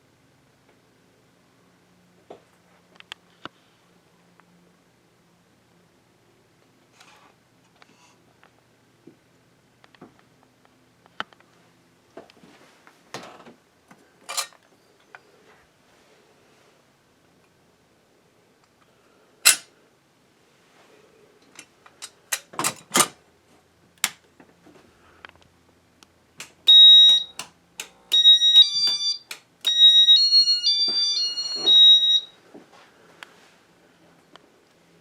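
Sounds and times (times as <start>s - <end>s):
sharp clicks: 26.4s - 29.8s
short electronic beeps: 26.7s - 27.5s, 28.1s - 32.3s.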